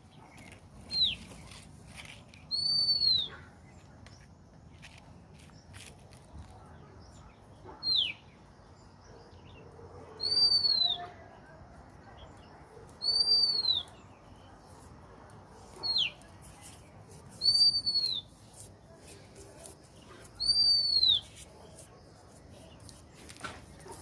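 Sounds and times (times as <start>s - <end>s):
bird calling with high whistles: 2.5s - 3.4s, 7.8s - 8.2s, 10.2s - 11.1s, 13.0s - 14.1s, 17.4s - 18.4s, 20.3s - 21.4s.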